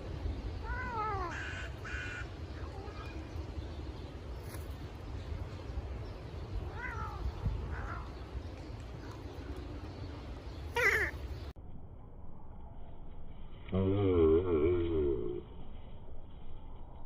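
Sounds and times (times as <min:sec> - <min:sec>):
steady low rumble: 0:00.0 - 0:17.0
cat meowing: 0:06.7 - 0:08.1.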